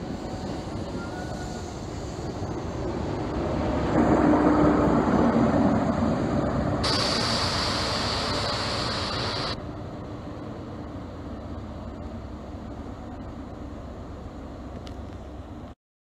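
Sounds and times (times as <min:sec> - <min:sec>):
diesel engine drone: 0:00.0 - 0:15.8
loud hiss: 0:06.8 - 0:09.6.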